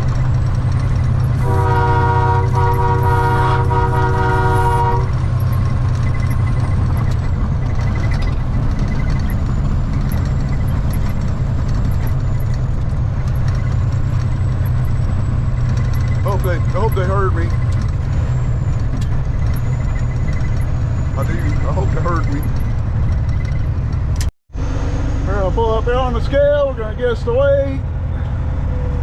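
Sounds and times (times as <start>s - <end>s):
truck engine droning: 0.0s - 29.0s
truck air horn blasts: 1.3s - 5.3s.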